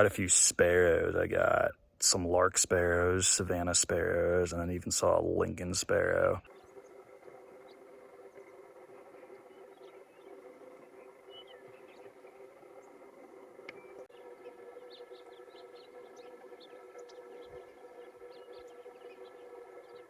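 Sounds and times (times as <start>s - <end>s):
faint hum of sustained tones: 0.0s - 20.0s
small bird chirps: 13.7s - 20.0s.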